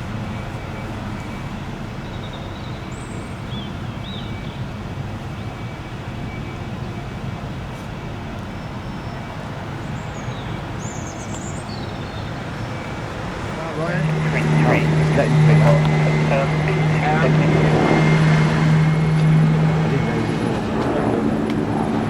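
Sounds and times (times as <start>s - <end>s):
low background rumble: 13.4s - 22.0s.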